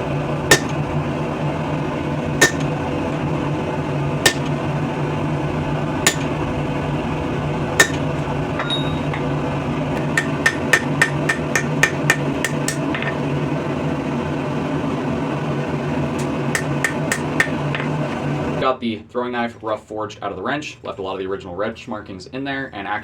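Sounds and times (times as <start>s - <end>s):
steady low hum: 0.0s - 19.6s
hammer striking steel on anvil: 0.5s - 0.8s, 2.4s - 2.7s, 4.2s - 4.5s, 6.0s - 6.4s, 7.8s - 9.2s, 10.0s - 13.2s, 16.6s - 17.6s.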